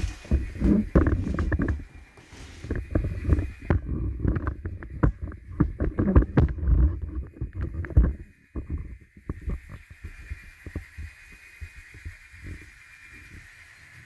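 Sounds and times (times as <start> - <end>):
model train running on track: 9.0 - 14.0.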